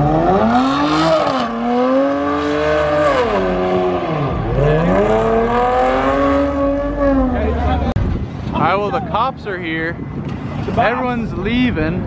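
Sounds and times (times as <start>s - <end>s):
car engine revving hard: 0.0s - 7.9s.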